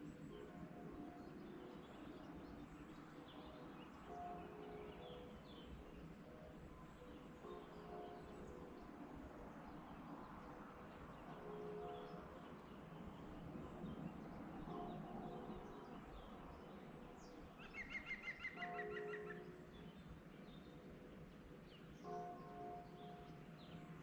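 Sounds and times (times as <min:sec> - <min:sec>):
soft steady hiss: 0:00.0 - 0:24.0
songbird trill: 0:00.0 - 0:24.0
distant church bell strokes: 0:04.1 - 0:05.4, 0:14.6 - 0:16.4, 0:22.0 - 0:24.0.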